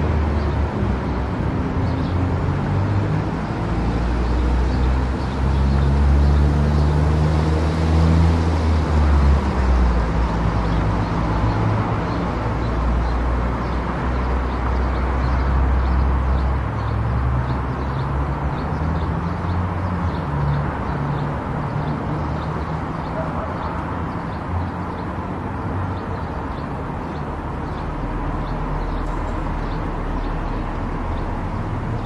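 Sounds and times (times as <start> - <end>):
tyre road noise: 0.0 - 32.0.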